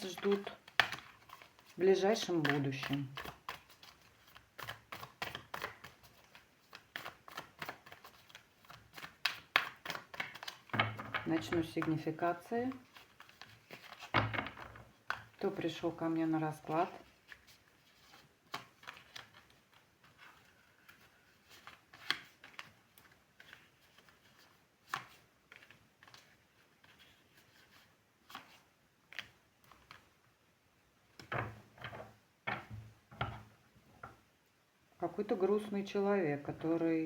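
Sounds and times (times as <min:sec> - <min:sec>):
cards rustling: 0:00.0 - 0:14.1, 0:14.9 - 0:30.1.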